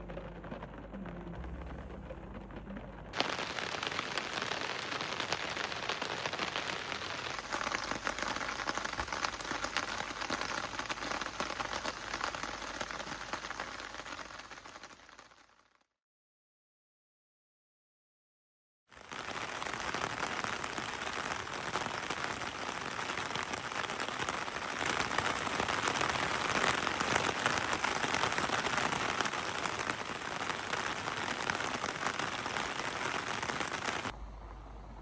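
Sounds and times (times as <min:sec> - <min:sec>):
low steady hum: 0:00.0 - 0:03.2, 0:34.1 - 0:35.0
steady rain falling: 0:00.0 - 0:15.3, 0:19.0 - 0:35.0.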